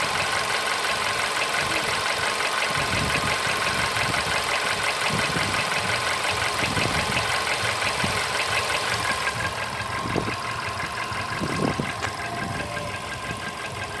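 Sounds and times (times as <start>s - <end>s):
engine idling with rhythmic knocking: 0.0s - 14.0s.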